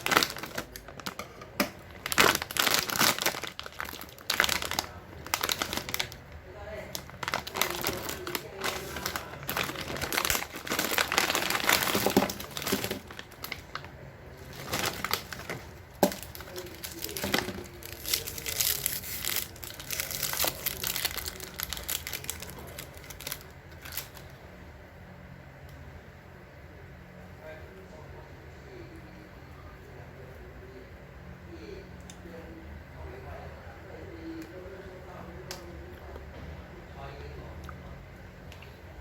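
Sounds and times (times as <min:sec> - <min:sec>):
plastic packaging crinkling: 0:00.0 - 0:24.4.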